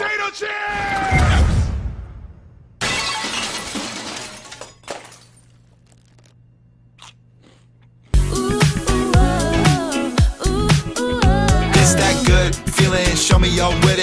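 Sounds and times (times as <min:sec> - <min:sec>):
crunching crash: 0:01.1 - 0:06.4
music: 0:08.2 - 0:14.0.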